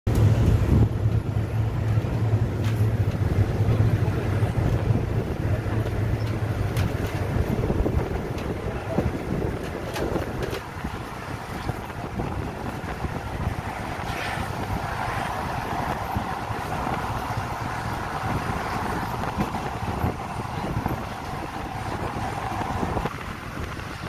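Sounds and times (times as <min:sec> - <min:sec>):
train rumble inside carriage: 0:00.1 - 0:24.0
wind noise at window: 0:00.1 - 0:24.0.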